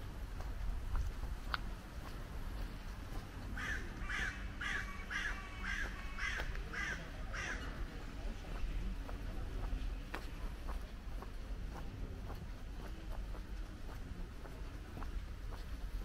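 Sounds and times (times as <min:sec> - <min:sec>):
steady low rumble: 0:00.0 - 0:16.0
bird calls: 0:03.6 - 0:07.9.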